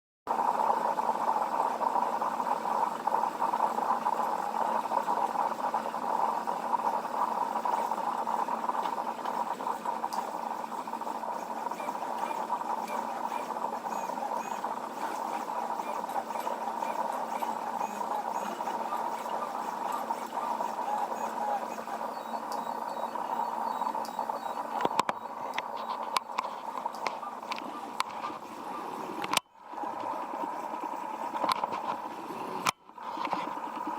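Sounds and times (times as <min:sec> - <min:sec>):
printer motors buzzing: 0:00.3 - 0:33.9.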